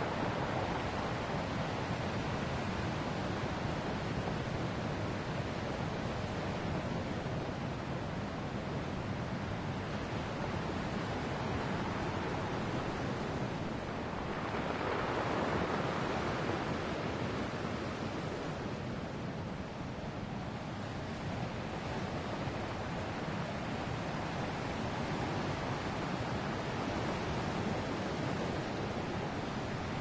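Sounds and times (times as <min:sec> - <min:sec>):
ocean waves washing on shore: 0:00.0 - 0:30.0.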